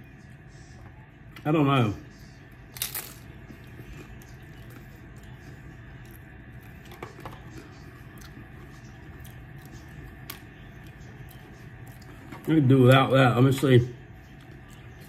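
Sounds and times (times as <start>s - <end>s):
low electrical hum: 0.0s - 15.0s
man chewing crunchy food: 2.7s - 12.9s.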